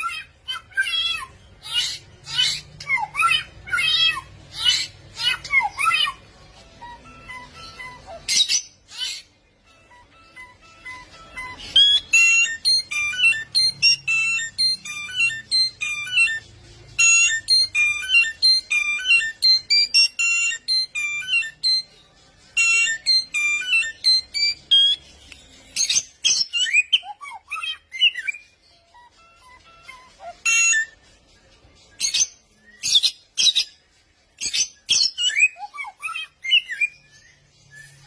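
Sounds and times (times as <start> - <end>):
songbird singing: 0.0 - 38.0.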